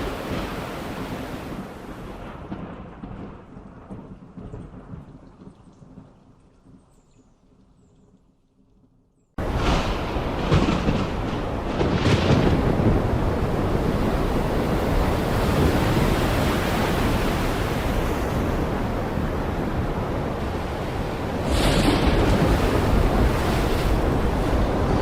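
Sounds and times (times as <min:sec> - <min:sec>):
heavy rain pouring: 0:09.4 - 0:25.0.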